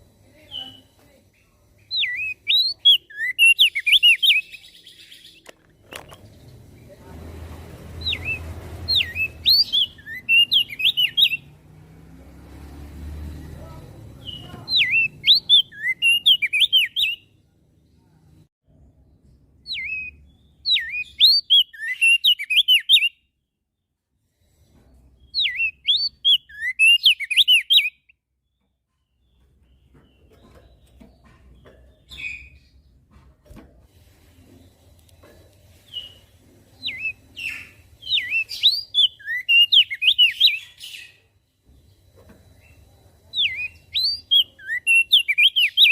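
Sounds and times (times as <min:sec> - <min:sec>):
bird singing whistled notes: 0:01.9 - 0:05.5, 0:08.0 - 0:11.5, 0:14.2 - 0:17.3, 0:19.6 - 0:23.3, 0:25.2 - 0:28.6, 0:36.8 - 0:41.3, 0:41.9 - 0:45.9.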